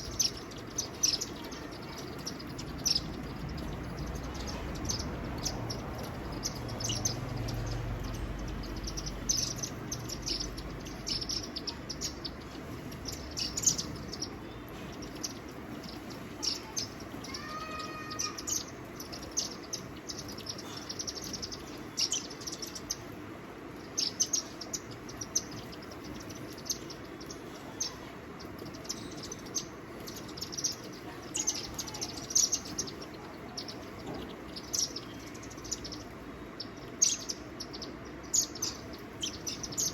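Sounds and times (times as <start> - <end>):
faint low rumble: 0.0 - 17.3
small birds chirping: 0.0 - 39.9.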